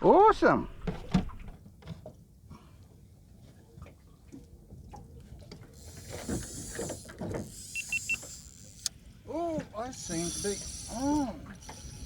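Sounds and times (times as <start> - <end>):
fishing reel drag whirring: 5.6 - 12.0.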